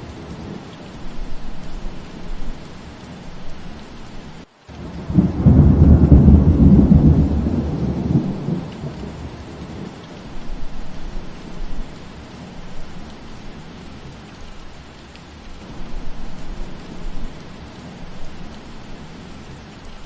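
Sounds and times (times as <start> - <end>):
steady rain: 0.0 - 20.0
thunder rumbling: 4.8 - 13.9.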